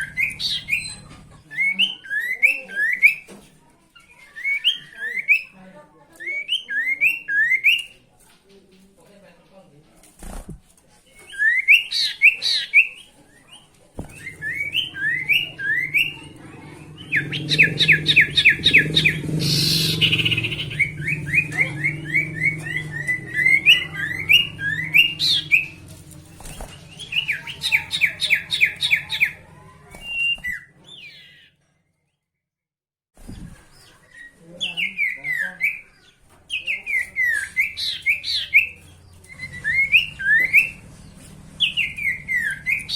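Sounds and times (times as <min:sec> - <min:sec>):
bird chirping: 0:00.0 - 0:03.3, 0:11.1 - 0:32.3, 0:33.3 - 0:42.9.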